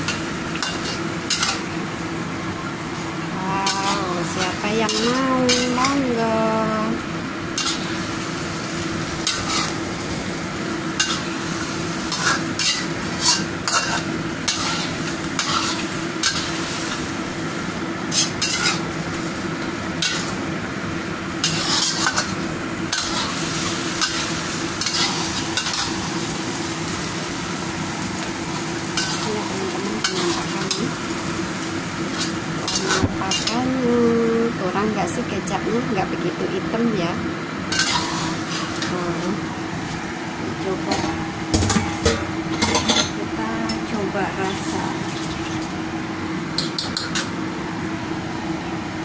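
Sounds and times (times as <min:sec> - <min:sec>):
chicken sizzling in a wok: 0:00.0 - 0:34.9, 0:37.4 - 0:49.0
steady hum: 0:00.0 - 0:49.0
metal spatula scraping a pan: 0:04.8 - 0:05.8, 0:09.2 - 0:09.8, 0:12.1 - 0:16.5, 0:18.1 - 0:18.8, 0:21.4 - 0:22.3, 0:24.0 - 0:25.9, 0:37.7 - 0:38.9.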